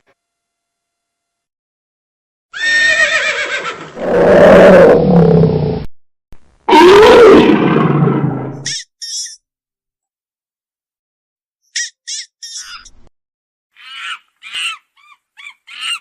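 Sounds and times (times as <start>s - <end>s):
animal whinny-like cry: 2.6s - 5.6s, 6.7s - 8.6s
animal roaring calls: 4.0s - 5.9s, 6.7s - 8.6s.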